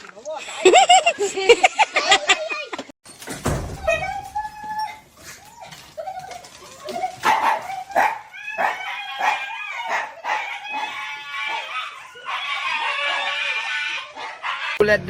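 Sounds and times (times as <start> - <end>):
dog barking: 7.1 - 14.8.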